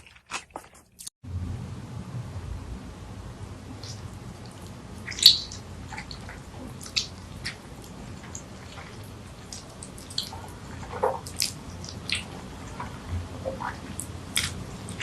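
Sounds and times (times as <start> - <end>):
wet chewing mouth clicks: 3.8 - 15.0.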